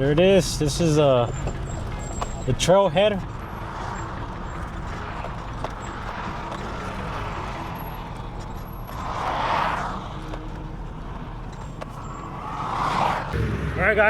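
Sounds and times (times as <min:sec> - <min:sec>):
car engine running at low speed: 0:00.0 - 0:13.7
rushing noise: 0:12.0 - 0:14.0.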